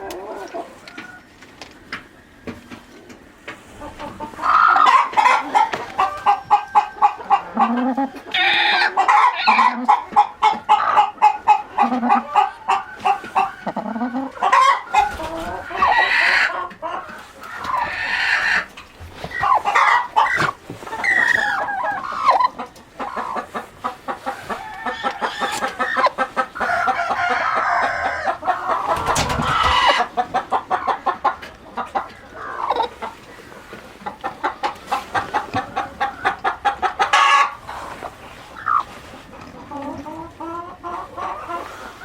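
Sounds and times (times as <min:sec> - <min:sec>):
chickens clucking: 0:00.0 - 0:42.0.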